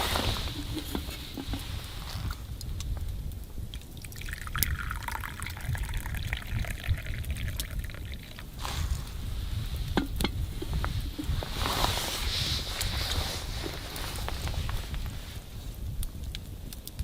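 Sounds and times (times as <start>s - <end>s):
liquid pouring: 0.0s - 2.7s, 3.7s - 14.2s
steady low rumble: 0.0s - 16.7s.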